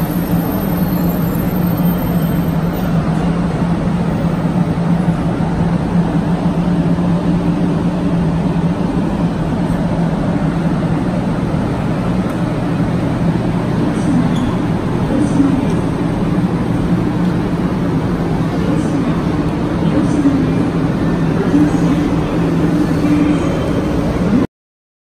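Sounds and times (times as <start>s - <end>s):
train rumble: 0.0s - 24.4s.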